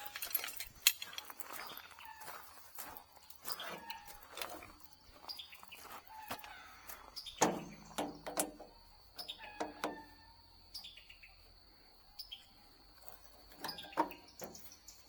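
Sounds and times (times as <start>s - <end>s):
metal parts clanking: 0.0s - 1.4s, 13.5s - 14.8s.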